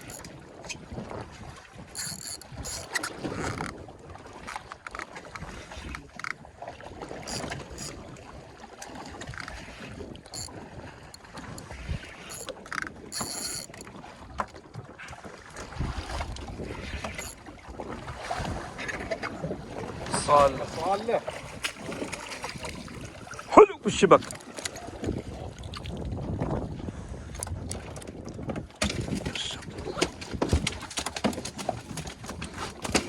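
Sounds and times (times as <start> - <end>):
wind buffeting microphone: 0.0 - 4.5, 13.8 - 23.4, 24.2 - 30.8
water noise: 0.0 - 33.0
clicks: 12.3 - 13.8.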